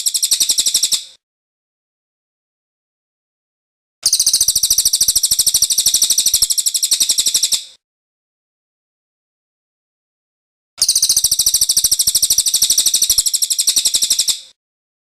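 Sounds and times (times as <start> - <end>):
bird high-pitched trill: 0.0 - 1.1, 4.0 - 7.6, 10.8 - 14.5.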